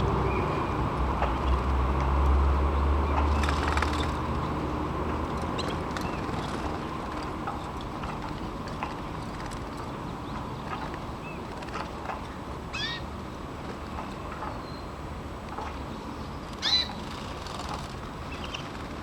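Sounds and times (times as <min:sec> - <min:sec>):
canary chirps: 0:12.7 - 0:13.1, 0:16.5 - 0:18.8.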